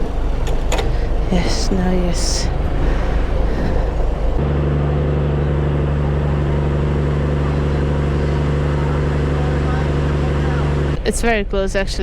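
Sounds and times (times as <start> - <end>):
ferry engine droning: 0.0 - 12.0.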